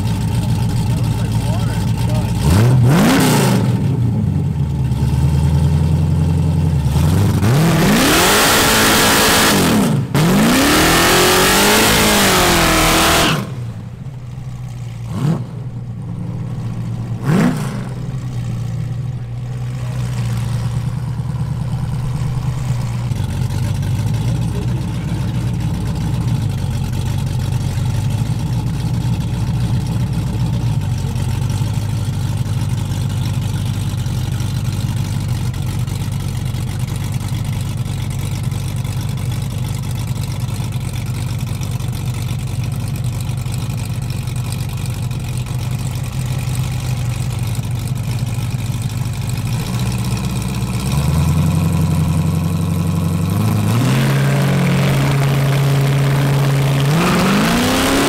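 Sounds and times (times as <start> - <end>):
car engine idling: 0.0 - 58.0
car engine revving hard: 1.5 - 4.1, 6.9 - 13.8, 15.1 - 15.7, 17.2 - 18.2, 49.5 - 58.0.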